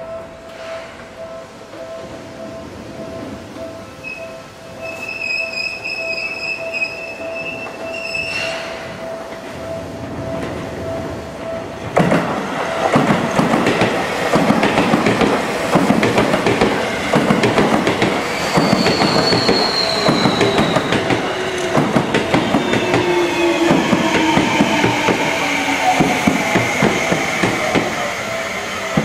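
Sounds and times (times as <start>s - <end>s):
level-crossing warning bell: 0.0s - 29.0s
high tone falling in pitch: 1.8s - 11.8s
train wheels clattering over rail joints: 11.9s - 28.0s.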